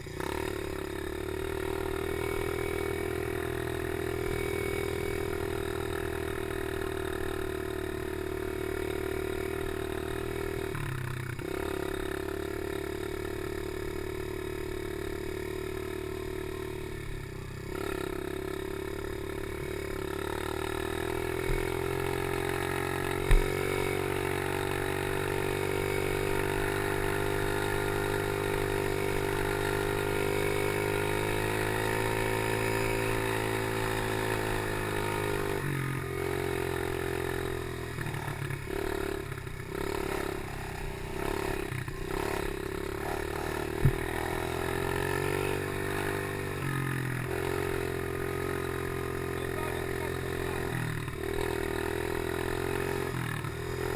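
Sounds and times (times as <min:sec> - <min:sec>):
small motorcycle engine running: 0:00.0 - 0:53.9
sharp thumps: 0:23.2 - 0:23.8, 0:43.7 - 0:44.2.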